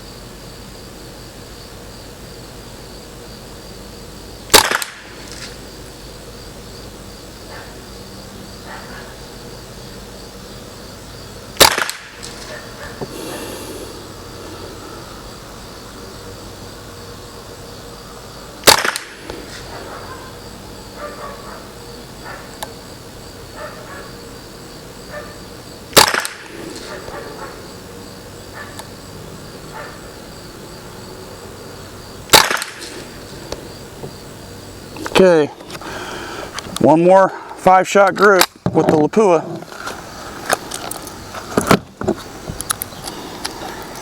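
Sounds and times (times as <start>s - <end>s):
crickets chirring: 0.0s - 44.0s
rifle shots cracking: 4.5s - 5.5s, 11.6s - 12.6s, 18.6s - 19.7s, 25.9s - 27.1s, 32.3s - 33.3s.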